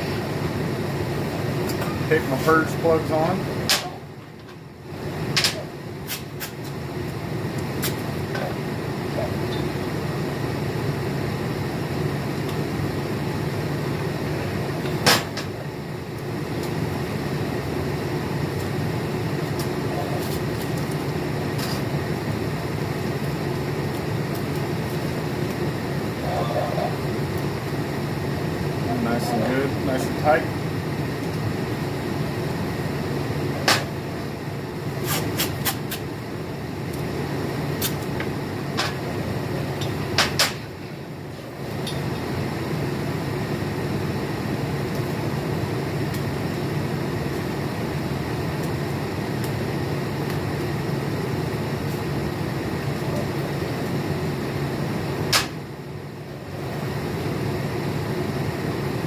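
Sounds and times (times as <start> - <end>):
machine hum: 0.0 - 35.0.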